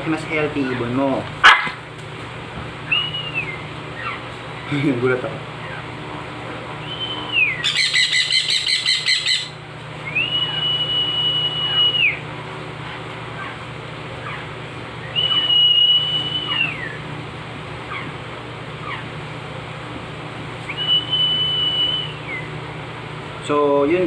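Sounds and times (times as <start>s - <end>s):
parrot whistling: 2.9s - 4.2s, 6.8s - 12.3s, 14.2s - 17.0s, 20.7s - 22.6s
parrot squawking: 2.9s - 4.4s, 5.6s - 6.0s, 6.8s - 10.8s, 12.8s - 17.1s, 17.8s - 18.2s, 18.8s - 19.2s, 20.7s - 22.5s.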